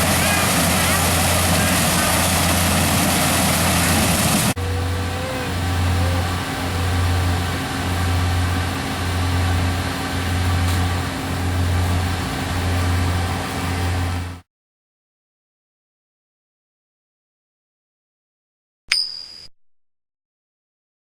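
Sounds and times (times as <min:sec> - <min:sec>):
harvester engine humming: 0:00.0 - 0:14.4.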